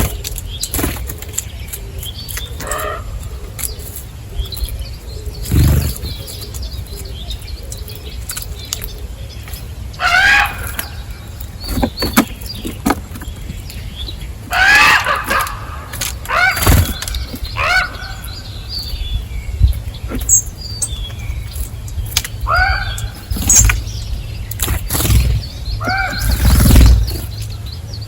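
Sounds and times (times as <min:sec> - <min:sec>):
loud bird call: 0:02.3 - 0:03.5, 0:10.0 - 0:12.8, 0:14.1 - 0:19.0, 0:22.4 - 0:24.0, 0:24.9 - 0:27.7
bird wings flapping: 0:15.3 - 0:17.4, 0:24.5 - 0:27.4.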